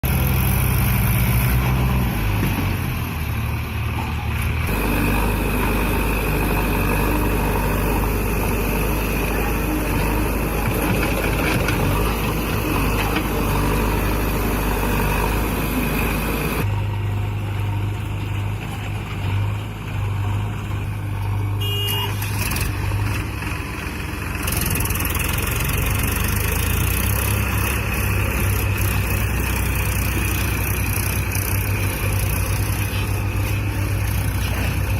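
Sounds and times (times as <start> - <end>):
tractor diesel engine under load: 0.0 - 34.9.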